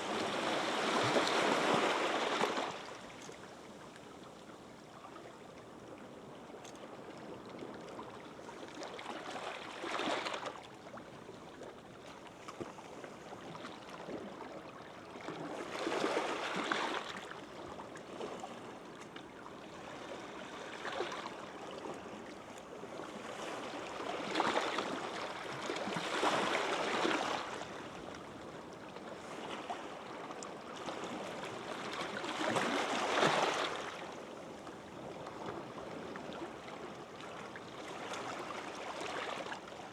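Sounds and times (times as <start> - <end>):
waves washing up a beach: 0.0 - 3.8.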